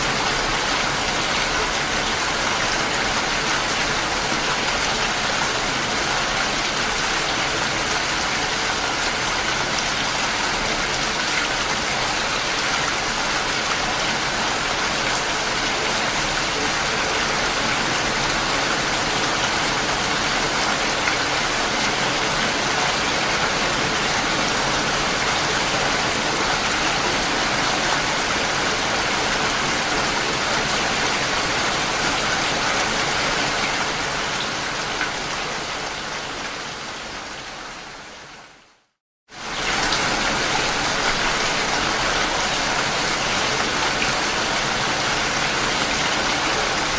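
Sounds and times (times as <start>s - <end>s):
steady rain hiss: 0.0s - 46.9s.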